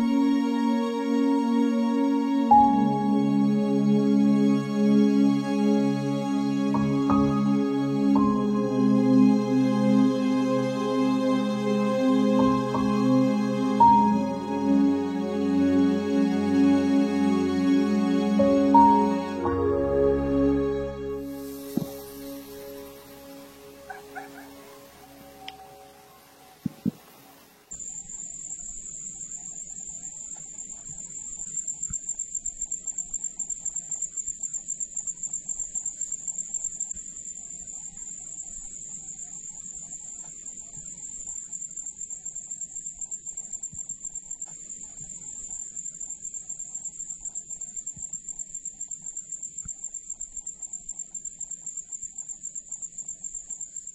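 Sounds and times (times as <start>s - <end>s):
music: 0.0s - 27.7s
insect calling in fast pulse: 21.3s - 26.7s.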